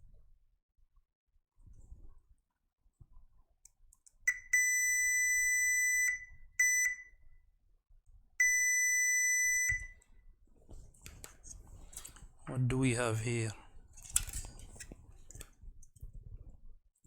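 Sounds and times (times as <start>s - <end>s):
multimeter continuity buzzer beeping: 4.3s - 7.1s, 8.4s - 10.0s.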